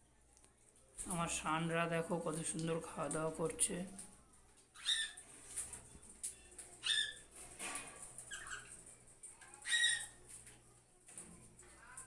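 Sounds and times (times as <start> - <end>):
parrots squawking: 4.7 - 5.3, 6.8 - 7.3, 8.2 - 8.8, 9.5 - 10.2.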